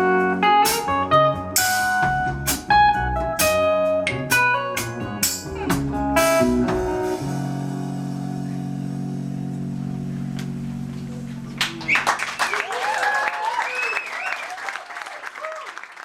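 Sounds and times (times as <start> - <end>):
picked guitar notes: 0.0 - 12.5
ringing guitar chord: 6.2 - 11.9.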